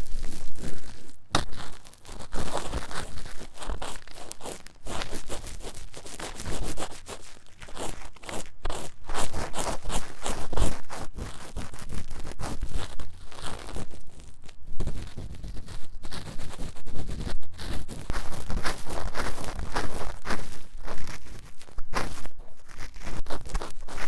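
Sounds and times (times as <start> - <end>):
scratching on microphone ear: 0.0 - 24.0.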